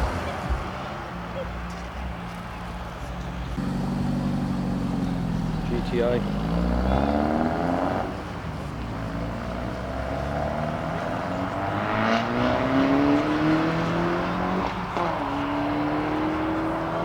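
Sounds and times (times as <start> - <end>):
car engine accelerating: 3.4 - 17.0.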